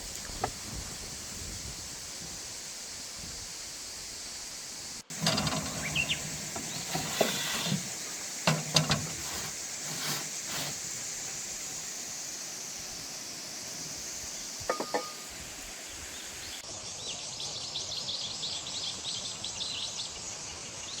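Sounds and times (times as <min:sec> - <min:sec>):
steady hiss: 0:00.0 - 0:21.0
small birds chirping: 0:04.7 - 0:12.0
crockery and cutlery clinking: 0:14.7 - 0:15.2.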